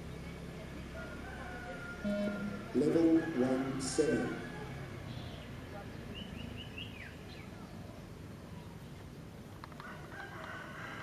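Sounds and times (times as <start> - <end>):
steady background noise: 0.0 - 11.0
bird chirping: 2.1 - 9.0.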